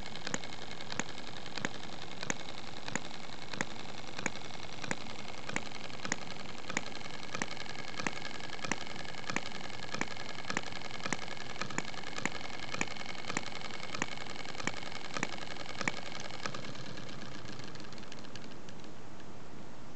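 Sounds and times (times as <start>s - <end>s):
mechanical whirr: 0.0s - 19.9s.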